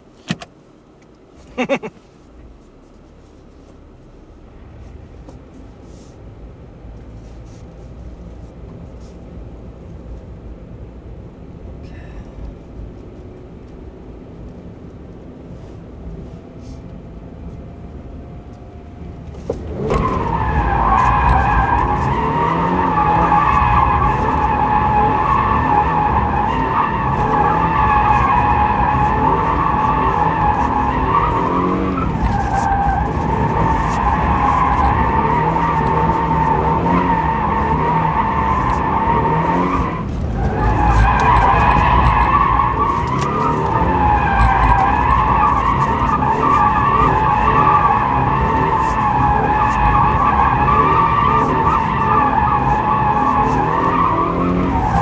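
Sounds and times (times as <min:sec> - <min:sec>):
car engine revving: 0:16.6 - 0:55.0
tyres squealing: 0:19.4 - 0:55.0.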